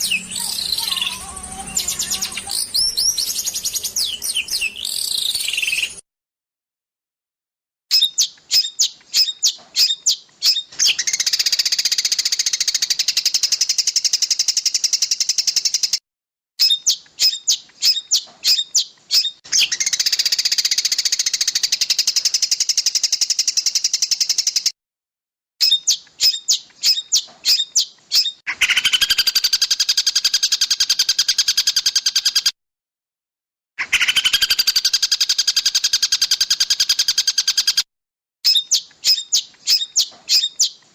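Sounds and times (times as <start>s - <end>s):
songbird chirps and buzzing trill: 0.0s - 6.0s.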